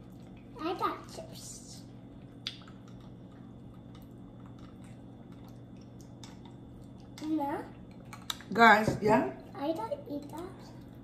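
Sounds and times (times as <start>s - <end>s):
low steady hum: 0.0s - 11.0s
people chewing chips: 2.0s - 8.5s.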